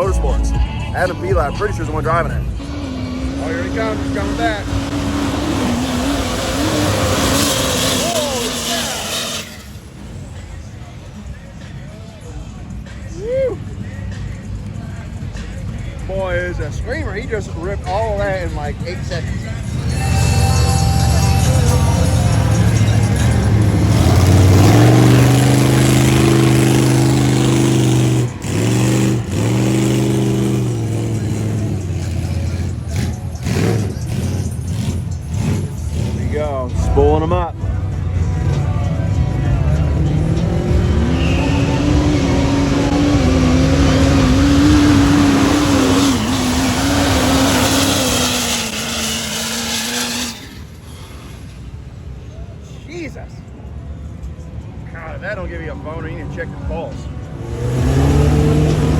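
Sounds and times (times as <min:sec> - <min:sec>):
truck engine at high revs: 0:00.0 - 0:11.8, 0:13.9 - 0:37.4, 0:38.1 - 0:52.2, 0:57.2 - 0:58.9.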